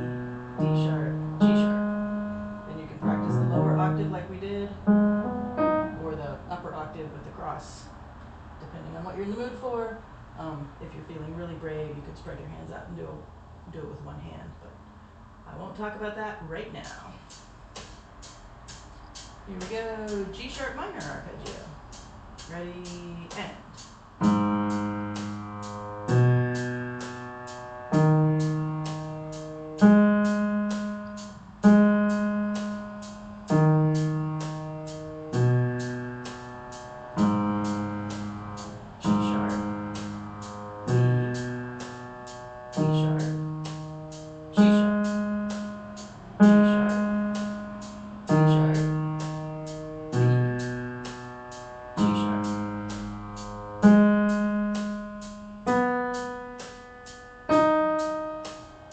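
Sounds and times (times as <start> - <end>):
slow piano arpeggio: 0.0 - 6.4, 24.2 - 58.9.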